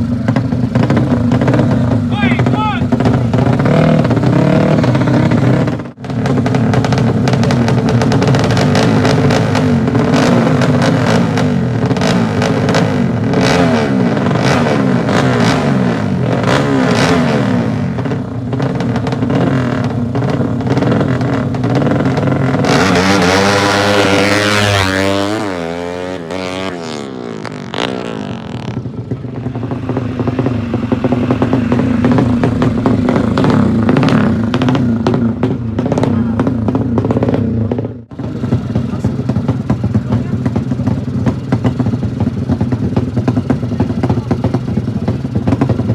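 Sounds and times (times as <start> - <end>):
motorcycle engines revving hard: 0.0 - 45.9
motorcycle passing by: 22.6 - 39.3.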